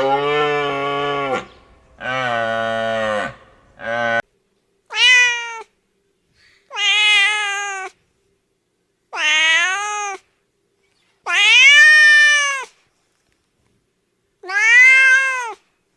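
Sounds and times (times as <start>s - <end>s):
cat meowing: 4.9s - 5.7s, 6.7s - 8.0s, 9.2s - 10.2s, 11.3s - 12.7s, 14.4s - 15.6s.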